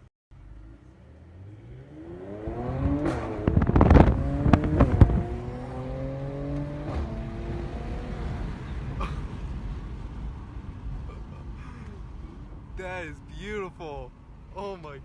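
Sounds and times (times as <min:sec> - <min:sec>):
car engine accelerating: 0:00.4 - 0:10.4
exhaust crackles and pops: 0:02.9 - 0:05.3.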